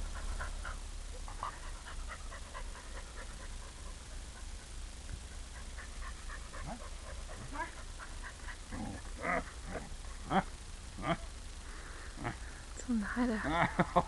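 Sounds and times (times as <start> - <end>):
dog growling and whining: 5.9 - 10.4.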